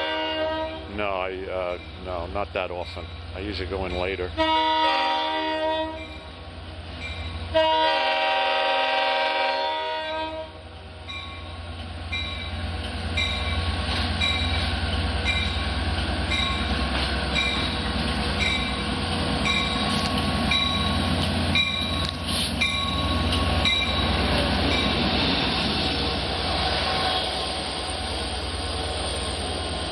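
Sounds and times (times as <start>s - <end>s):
train horn blasts: 0.0s - 0.9s, 4.4s - 6.1s, 7.5s - 10.6s, 26.7s - 27.4s.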